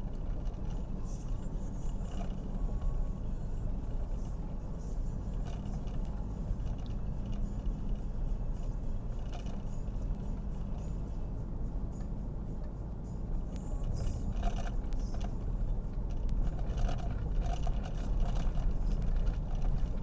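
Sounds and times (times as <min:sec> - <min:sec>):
road and engine rumble: 0:00.0 - 0:20.0
rattles and knocks: 0:13.8 - 0:20.0.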